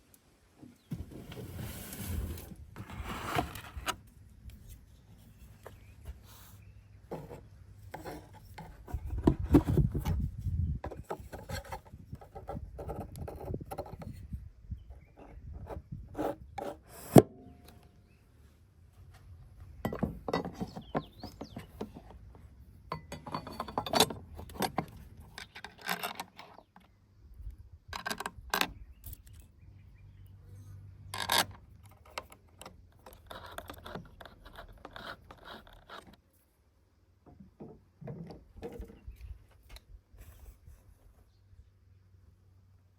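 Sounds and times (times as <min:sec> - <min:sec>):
rubbing and scraping: 0:00.9 - 0:14.3, 0:31.1 - 0:36.5.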